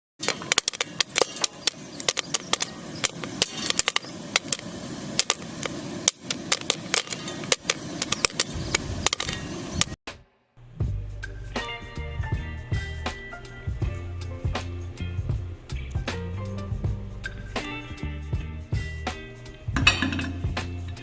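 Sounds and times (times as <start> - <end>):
popcorn popping: 0.2 - 10.0
sizzling hiss: 0.2 - 10.0, 10.8 - 21.0.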